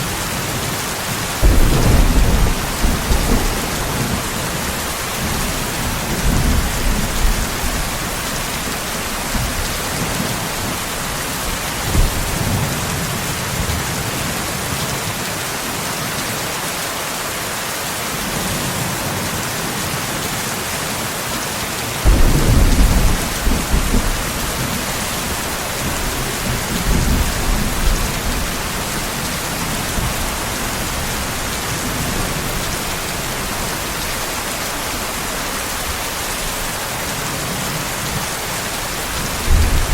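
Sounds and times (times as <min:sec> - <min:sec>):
steady rain: 0:00.0 - 0:39.9
rolling thunder: 0:01.4 - 0:12.9, 0:22.0 - 0:33.7, 0:39.1 - 0:39.9.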